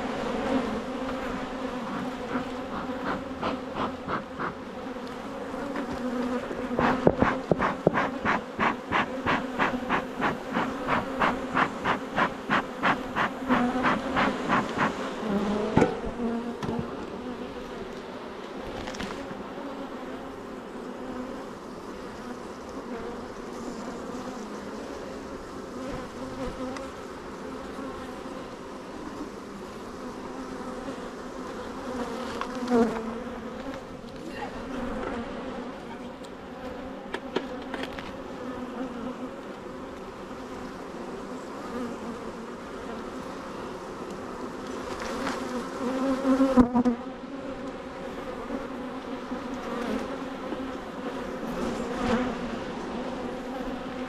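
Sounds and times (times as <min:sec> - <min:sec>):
bees buzzing: 0:00.0 - 0:54.0
hive frames clicking: 0:01.0 - 0:17.1, 0:32.2 - 0:33.0.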